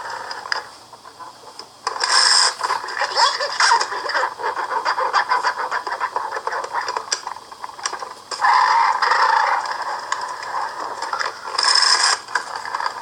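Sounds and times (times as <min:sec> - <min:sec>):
talking toy record crackling: 0:00.0 - 0:13.0
loud raspy burst: 0:02.0 - 0:04.4, 0:11.6 - 0:12.3.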